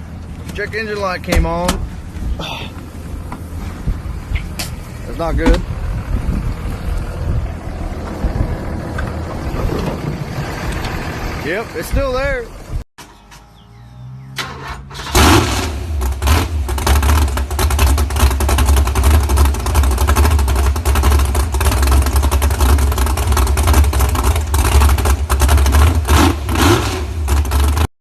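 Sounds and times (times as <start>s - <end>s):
engine exhaust rumble: 0.0s - 27.9s
engine cranking: 14.4s - 27.9s.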